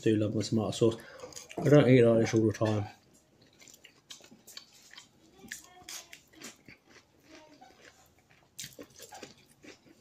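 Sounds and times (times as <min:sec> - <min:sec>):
person chewing with mouth clicks: 0:02.6 - 0:10.0.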